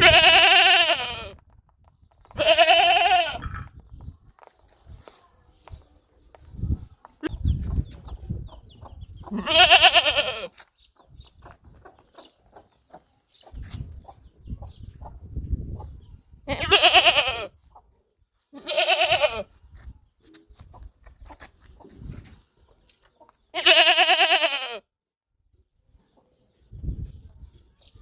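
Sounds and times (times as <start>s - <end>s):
goat bleating: 0.0s - 1.4s, 2.4s - 3.6s, 9.3s - 10.6s, 16.5s - 17.5s, 18.5s - 19.5s, 23.5s - 24.8s.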